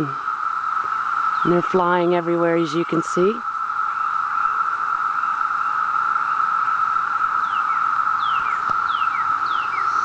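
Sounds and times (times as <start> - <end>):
cicadas droning: 0.0 - 10.0
bird whistling downward notes: 7.4 - 10.0.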